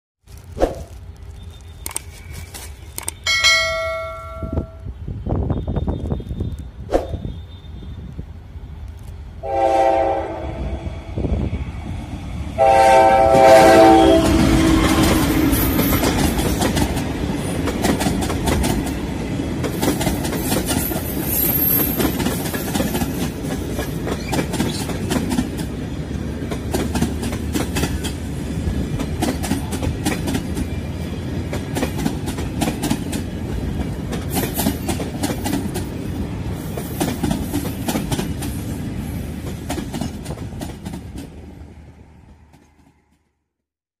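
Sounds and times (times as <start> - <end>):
train wheels rumbling on rails: 0.3 - 43.3
clickety-clack over rail joints: 14.1 - 41.6, 42.2 - 43.3.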